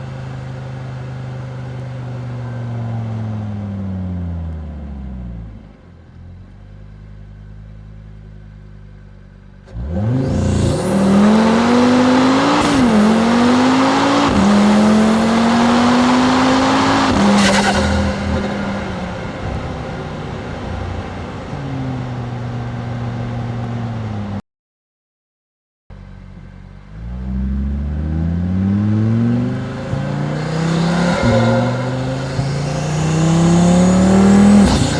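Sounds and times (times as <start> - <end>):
car engine accelerating: 0.0 - 24.4, 25.9 - 34.9
car engine idling: 5.8 - 24.3, 25.9 - 28.0.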